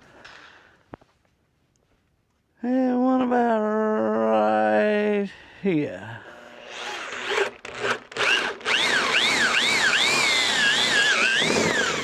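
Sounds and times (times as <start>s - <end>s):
power drill boring into wood: 6.3s - 12.0s.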